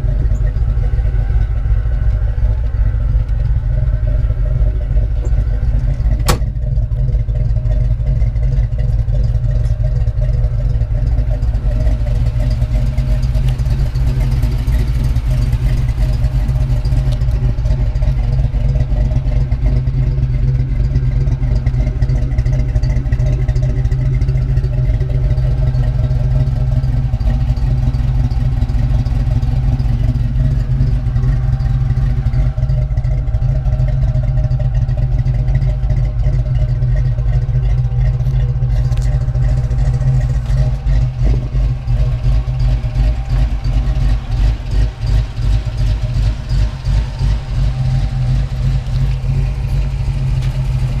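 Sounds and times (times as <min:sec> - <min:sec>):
car engine idling: 0:00.0 - 0:51.0.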